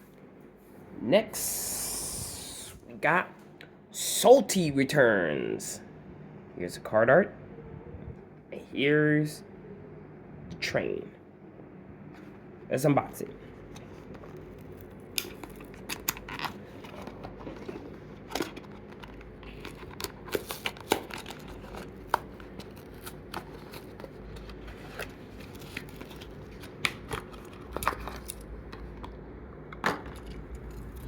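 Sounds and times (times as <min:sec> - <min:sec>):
sharp clicks and crinkles: 0:13.7 - 0:31.0
cardboard and plastic tearing: 0:14.4 - 0:28.4.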